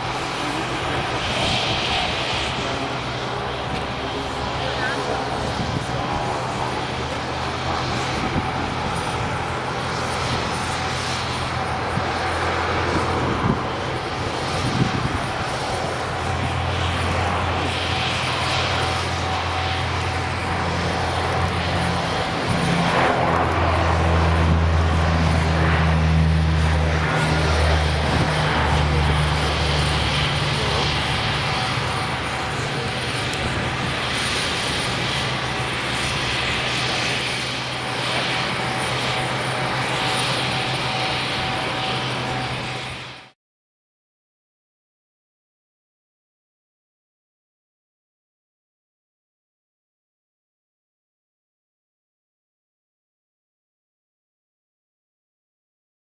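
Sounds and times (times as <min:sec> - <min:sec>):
turboprop engines droning: 0:00.0 - 0:43.4.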